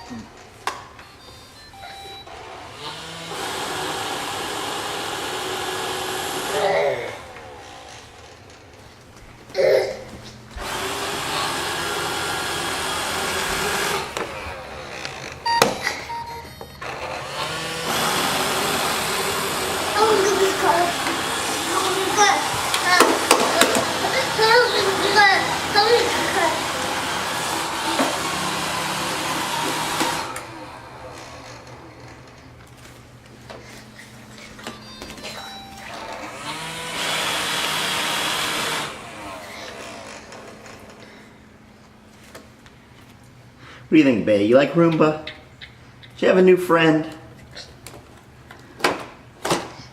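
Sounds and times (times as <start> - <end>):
robot vacuum motor whirring: 2.3 - 8.4, 10.6 - 15.5, 16.8 - 31.8, 35.9 - 41.0.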